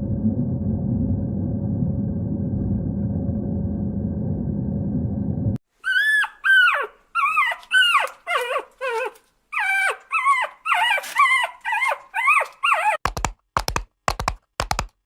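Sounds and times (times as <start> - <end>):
animal giving short high cries: 5.8 - 13.0.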